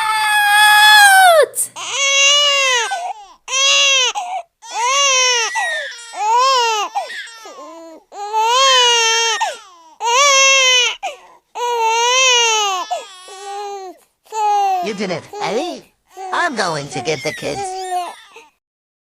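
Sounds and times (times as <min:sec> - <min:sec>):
newborn baby crying: 0:00.0 - 0:18.6
baby gasping breaths: 0:11.0 - 0:11.6, 0:12.9 - 0:14.1.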